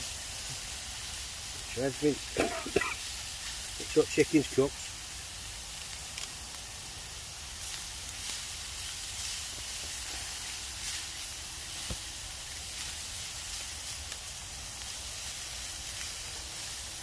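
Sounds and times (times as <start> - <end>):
meat sizzling in a skillet: 0.0 - 17.0.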